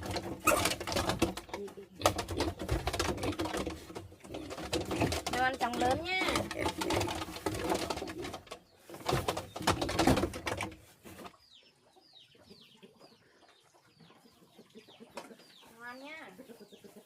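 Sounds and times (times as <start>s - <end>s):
rustling and clattering: 0.0s - 11.5s
young chickens peeping: 0.0s - 17.0s.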